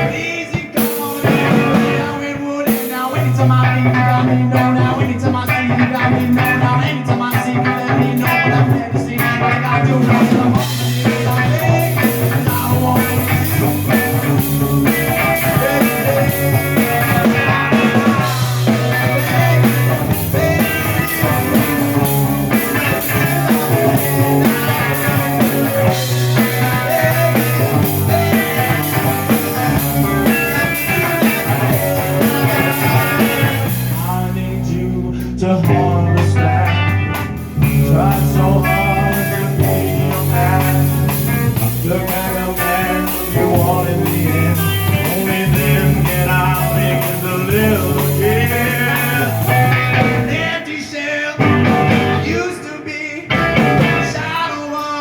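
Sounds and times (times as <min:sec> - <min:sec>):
rock band playing: 0:00.0 - 0:55.0.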